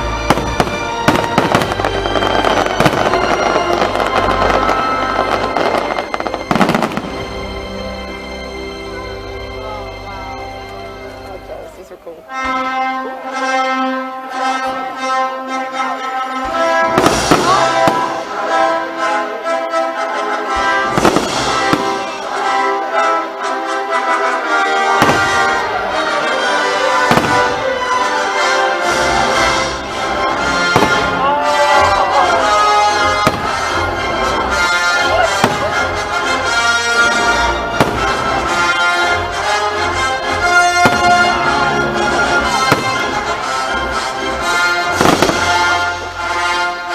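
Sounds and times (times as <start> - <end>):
fireworks bursting: 0.0 - 7.9, 16.3 - 18.9, 20.6 - 23.2, 24.0 - 46.9
orchestral music with brass: 0.0 - 46.9.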